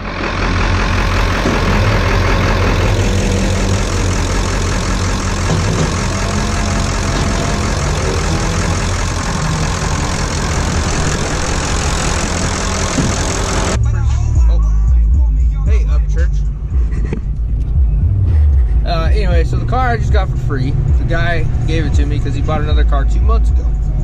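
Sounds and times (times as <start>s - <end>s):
road noise: 0.0s - 14.3s, 15.4s - 24.0s
truck engine rumbling: 0.0s - 24.0s.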